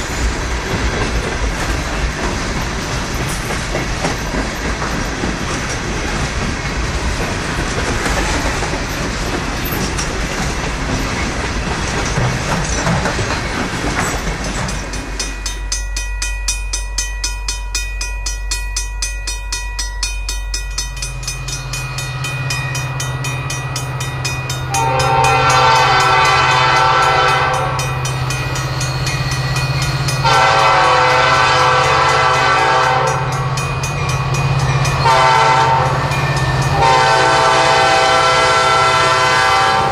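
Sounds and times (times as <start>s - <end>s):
train rattling and clattering: 0.0s - 39.9s
diesel locomotive engine running: 19.7s - 39.9s
locomotive air horn blasts: 24.7s - 27.8s, 30.2s - 33.3s, 35.0s - 36.1s, 36.7s - 39.9s.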